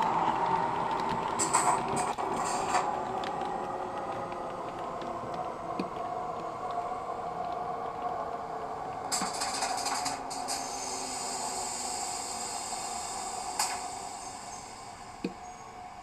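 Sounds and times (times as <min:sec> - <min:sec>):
faint clicks: 0:00.0 - 0:08.2
burst of hiss: 0:09.1 - 0:15.5.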